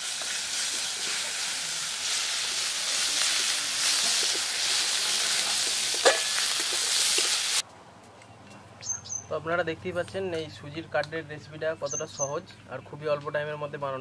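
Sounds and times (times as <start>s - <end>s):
spices sizzling in hot oil: 0.0s - 7.6s
metal spatula stirring in wok: 0.1s - 7.6s.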